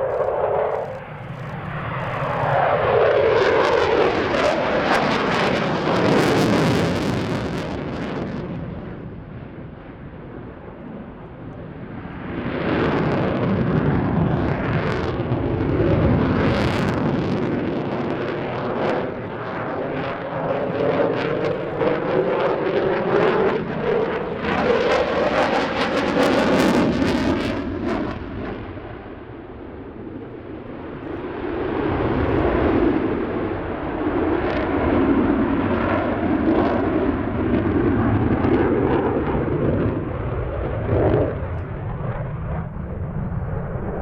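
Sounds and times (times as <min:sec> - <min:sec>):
fighter jet passing: 0:00.0 - 0:44.0.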